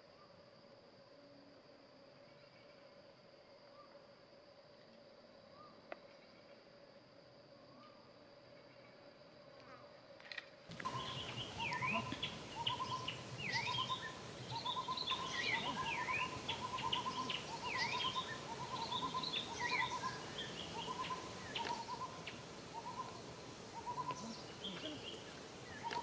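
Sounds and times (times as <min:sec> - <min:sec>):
birds chirping and whistling: 0:10.8 - 0:23.2
bird hooting note: 0:10.8 - 0:26.0.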